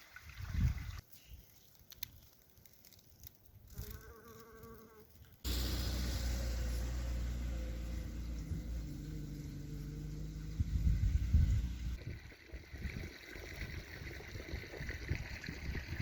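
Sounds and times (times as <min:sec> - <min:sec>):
insect buzzing: 0:03.7 - 0:06.0
loud steady low rumble: 0:05.5 - 0:13.0.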